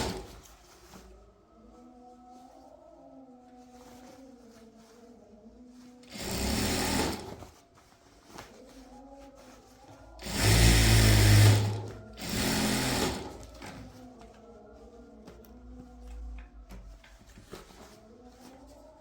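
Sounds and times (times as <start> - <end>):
sewing machine stitching: 0.0 - 0.4, 6.0 - 7.5, 10.2 - 13.8.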